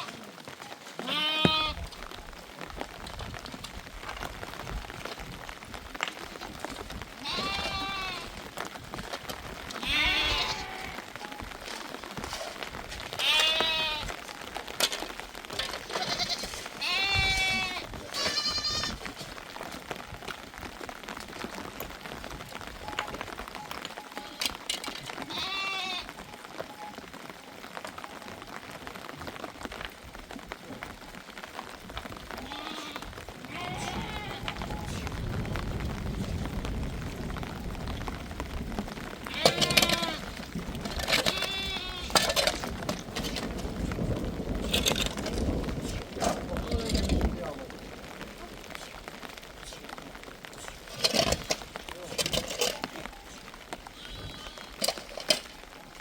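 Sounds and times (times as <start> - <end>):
sheep and goats bleating: 0.0 - 1.9, 7.2 - 8.4, 9.8 - 11.4, 13.1 - 14.3, 15.7 - 19.2, 24.0 - 26.2, 32.3 - 35.1, 39.2 - 40.4, 41.0 - 42.6, 52.4 - 55.3.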